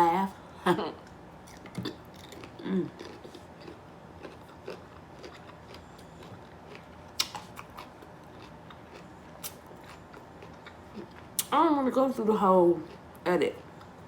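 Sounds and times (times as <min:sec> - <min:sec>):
person chewing crunchy food: 0:01.4 - 0:11.5.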